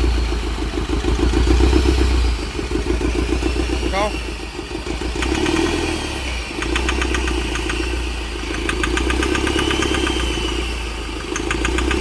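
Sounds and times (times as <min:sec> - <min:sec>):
diesel engine idling: 0:00.0 - 0:12.0
sharp metallic engine ticks: 0:00.0 - 0:12.0.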